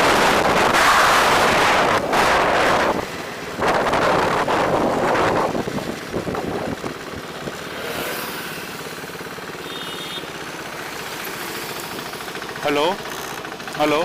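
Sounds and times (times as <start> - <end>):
wind on microphone: 0.0 - 7.0
motorcycle engine idling: 4.4 - 14.0.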